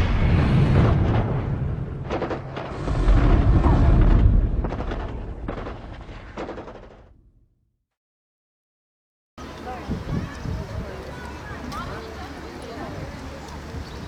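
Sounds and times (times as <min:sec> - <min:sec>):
sharp cracks: 0:00.0 - 0:07.3
deep rumble: 0:00.0 - 0:07.5
heavy booms: 0:00.0 - 0:07.5.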